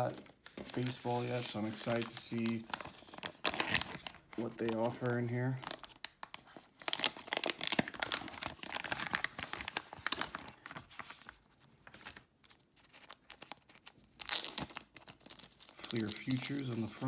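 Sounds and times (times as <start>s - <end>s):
wrapper crinkling and tearing: 0.0s - 17.0s.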